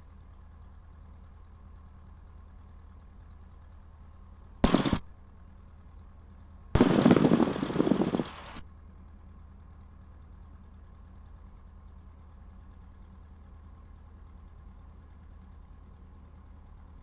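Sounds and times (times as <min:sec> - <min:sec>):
radio static bursts: 0:04.6 - 0:05.0
aircraft engine humming: 0:04.6 - 0:05.2, 0:06.0 - 0:08.6.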